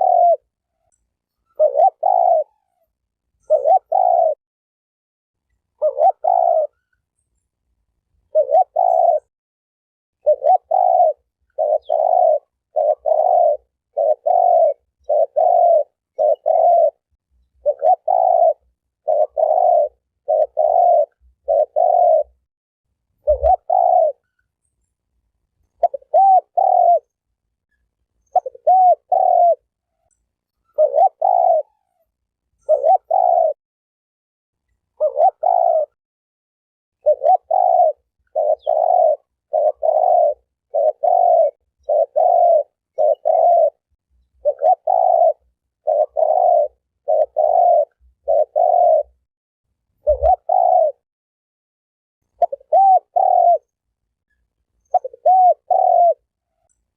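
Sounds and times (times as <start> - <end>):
dove cooing: 0.0 - 4.4, 5.8 - 7.0, 8.3 - 9.3, 10.2 - 22.4, 23.2 - 24.4, 25.8 - 27.2, 28.2 - 33.6, 34.9 - 36.0, 37.0 - 49.2, 50.0 - 51.0, 52.3 - 53.8, 54.8 - 56.7.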